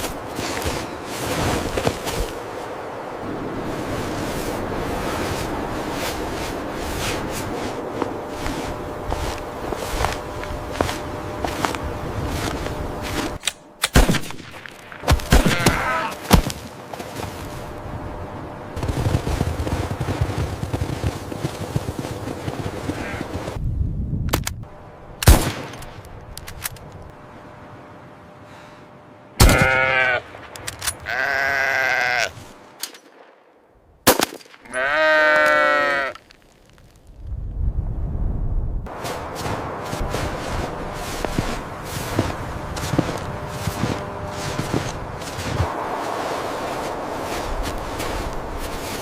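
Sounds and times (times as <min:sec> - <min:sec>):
sharp bangs: 0:13.3 - 0:16.5
animal bleating: 0:15.4 - 0:16.2, 0:23.0 - 0:23.3, 0:29.4 - 0:30.2, 0:31.0 - 0:32.4, 0:34.7 - 0:36.3.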